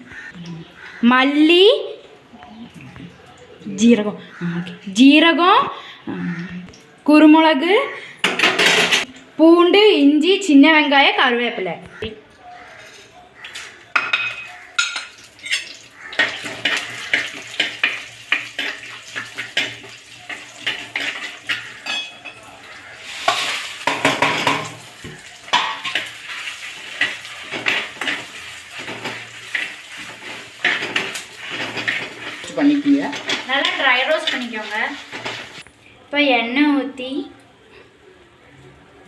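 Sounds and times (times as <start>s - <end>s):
metal utensil scraping a pan: 12.6s - 35.6s.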